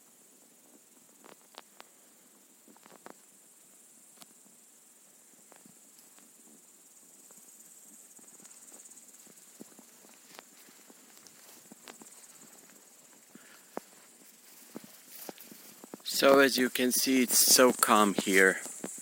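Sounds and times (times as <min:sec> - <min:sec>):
insects chirping: 0:00.0 - 0:19.0
soft clicks and rustles: 0:00.7 - 0:02.0, 0:02.6 - 0:03.3, 0:08.3 - 0:16.1.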